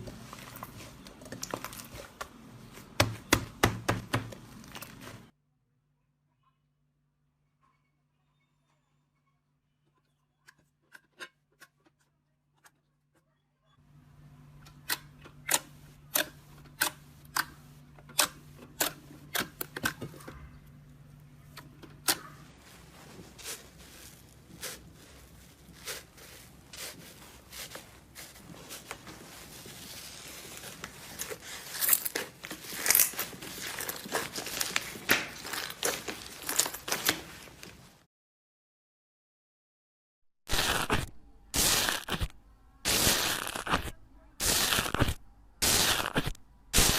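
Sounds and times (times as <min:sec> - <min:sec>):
slime popping and crackling: 0:40.5 - 0:46.9.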